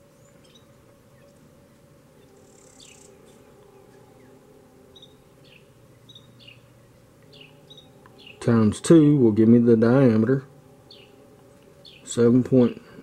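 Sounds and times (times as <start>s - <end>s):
faint bird chirps: 0.0s - 1.5s, 2.2s - 8.7s, 10.8s - 12.9s
low steady hum: 0.0s - 13.0s.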